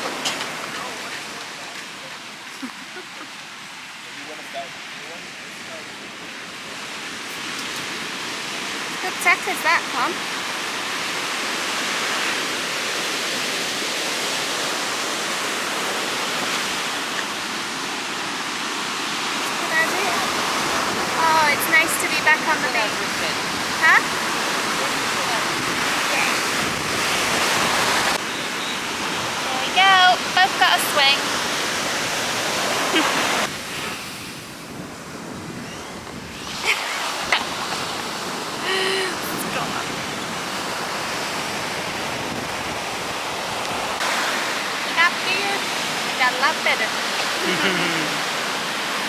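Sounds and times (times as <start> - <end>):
ocean surf rushing: 0.0 - 49.0
sea waves washing on beach: 0.0 - 49.0
wind buffeting microphone: 19.4 - 44.2.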